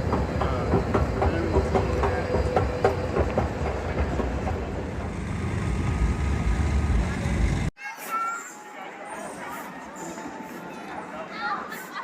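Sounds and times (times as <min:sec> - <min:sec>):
train rumbling on rails: 0:00.0 - 0:07.7
wheels clacking over track: 0:00.0 - 0:07.7.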